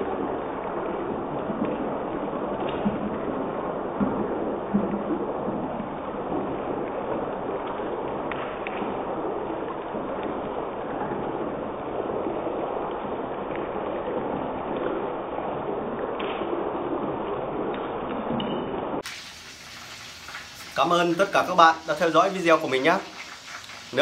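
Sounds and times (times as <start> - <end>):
chicken sizzling in oil: 19.0 - 24.0.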